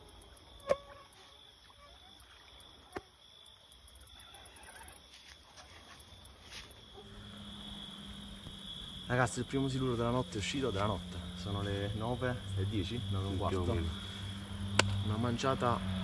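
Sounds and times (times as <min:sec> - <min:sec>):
crickets chirping: 0:00.0 - 0:16.0
low hum: 0:06.9 - 0:16.0
sharp clicks: 0:14.8 - 0:15.1.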